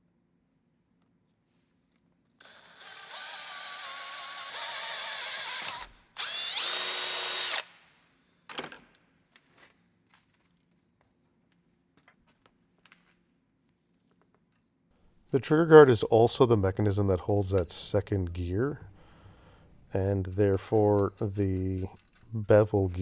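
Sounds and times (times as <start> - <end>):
power tool motor whining: 2.4 - 7.7.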